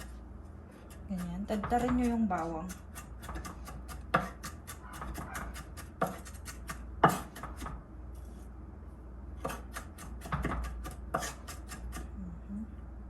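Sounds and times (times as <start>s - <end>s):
knife chopping on cutting board: 0.9s - 7.8s, 9.4s - 12.1s.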